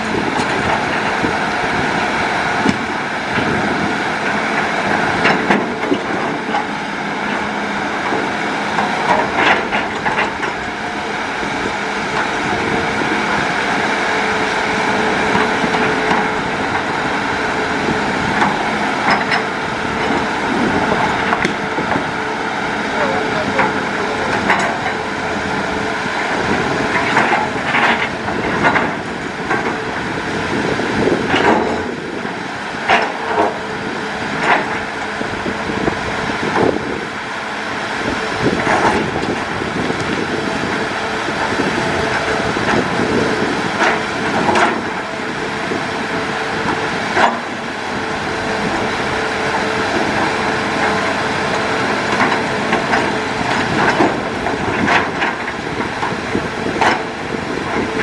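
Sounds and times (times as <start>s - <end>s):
excavator engine and hydraulic drone: 0.0s - 58.0s
sharp clanks and knocks: 5.2s - 6.7s, 8.8s - 10.9s, 18.3s - 20.2s, 21.0s - 22.1s, 23.0s - 25.0s, 26.5s - 29.8s, 31.3s - 32.0s, 32.8s - 33.6s, 34.4s - 34.9s, 38.5s - 40.2s, 43.7s - 45.0s, 46.6s - 47.6s, 52.0s - 57.1s.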